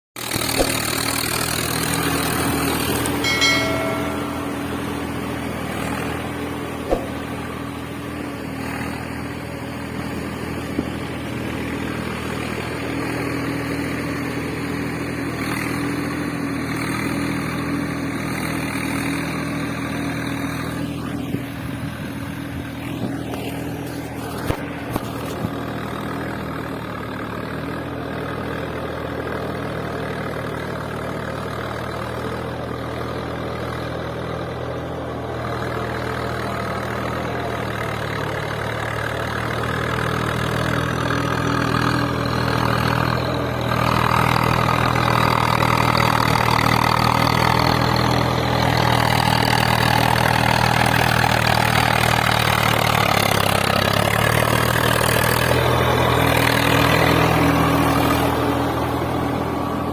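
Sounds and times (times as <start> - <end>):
short pitched tone: 3.2 - 5.5.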